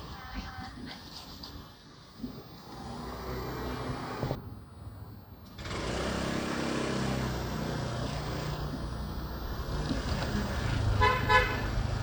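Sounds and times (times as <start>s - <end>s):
vehicle horn beeping: 10.8s - 12.0s.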